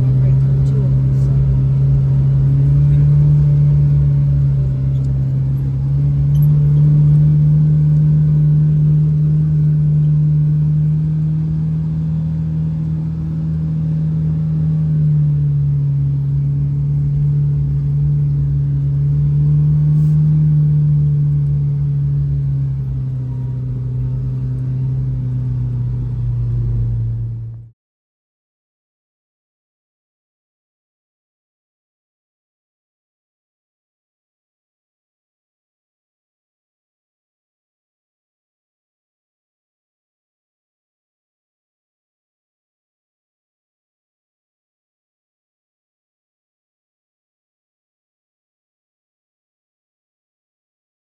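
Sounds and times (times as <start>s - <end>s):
vehicle engine droning: 0.0s - 27.8s.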